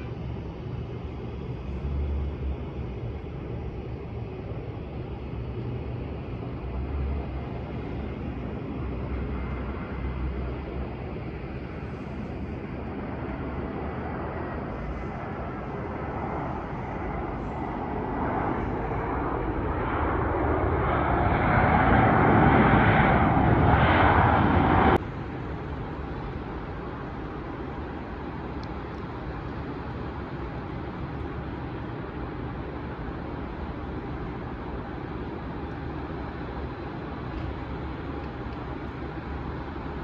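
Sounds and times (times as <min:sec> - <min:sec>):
airliner engines running: 0:00.0 - 0:40.0.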